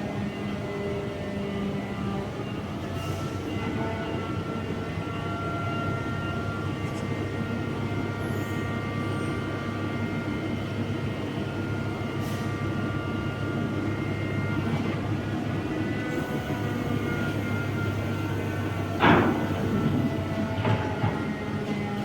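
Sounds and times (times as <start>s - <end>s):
machinery whining tones: 0.0s - 22.0s
heavy machinery engine rumble: 6.4s - 22.0s.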